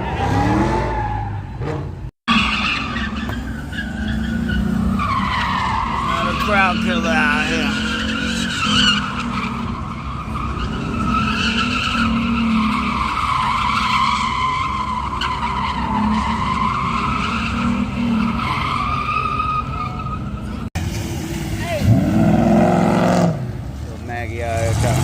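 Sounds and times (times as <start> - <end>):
tyres squealing: 0.0 - 20.7.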